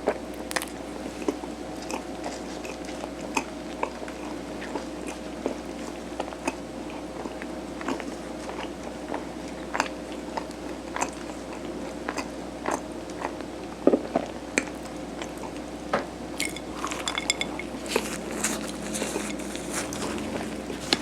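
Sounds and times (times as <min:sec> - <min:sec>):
wet mouth clicks and chewing: 0:06.2 - 0:13.4
utensil clinking on dish: 0:16.4 - 0:18.0.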